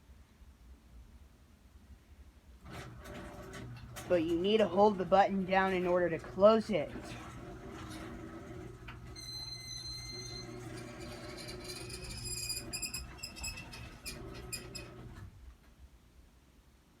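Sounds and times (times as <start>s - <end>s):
garage door opener motor hum: 2.6s - 15.4s
high squeaks and clicks: 8.9s - 15.1s.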